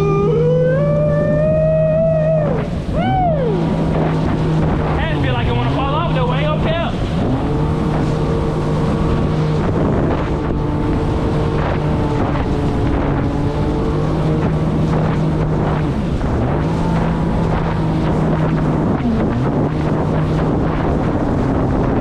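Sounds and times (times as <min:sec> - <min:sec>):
jet ski engine running: 0:00.0 - 0:22.0
wind buffeting microphone: 0:00.0 - 0:22.0.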